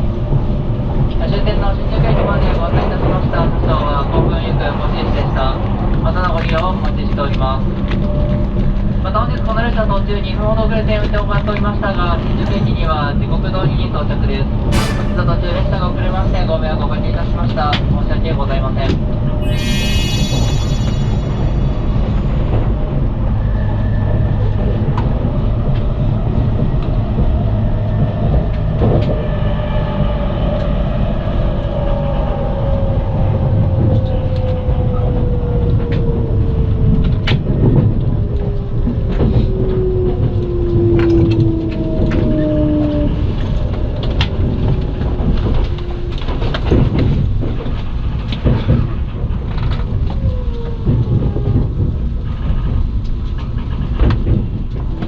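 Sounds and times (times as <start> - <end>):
train carriage rumble: 31.7 - 55.0.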